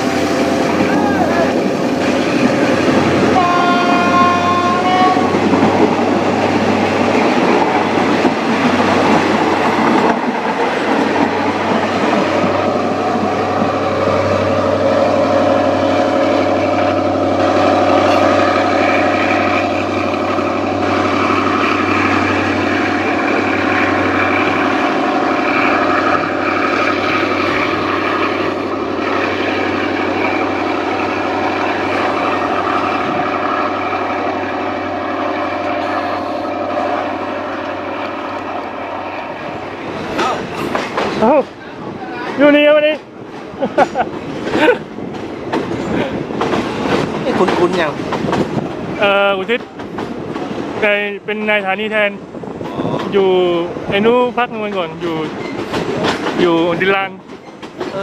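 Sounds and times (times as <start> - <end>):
engine drone: 0.0 - 3.4
train wheels clattering: 0.0 - 51.1, 51.7 - 58.0
train horn: 3.2 - 5.5.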